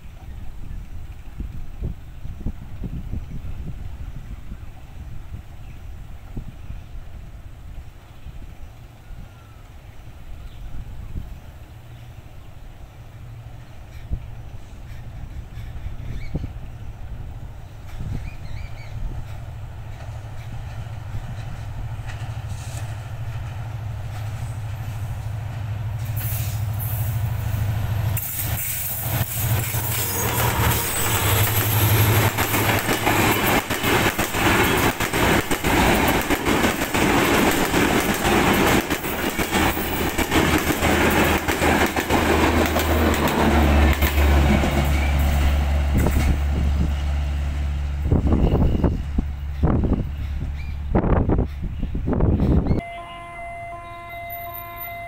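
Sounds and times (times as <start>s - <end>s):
train wheels clattering over rail joints: 17.8s - 27.1s, 28.1s - 47.1s
locomotive engine drone: 19.0s - 55.0s.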